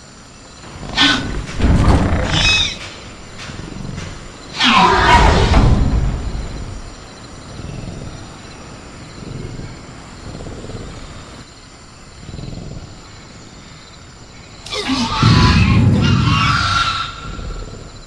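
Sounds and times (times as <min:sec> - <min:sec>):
crickets chirping: 0:00.0 - 0:18.0
low rumbling growls: 0:00.6 - 0:18.0
roaring screech: 0:00.8 - 0:05.9, 0:14.7 - 0:17.8.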